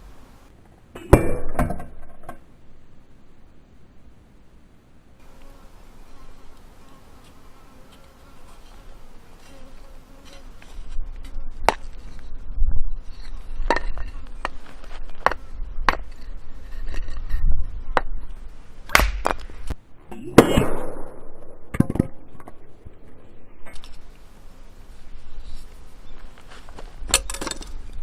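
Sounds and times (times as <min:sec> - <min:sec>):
blade chopping firewood: 0:18.9 - 0:19.5.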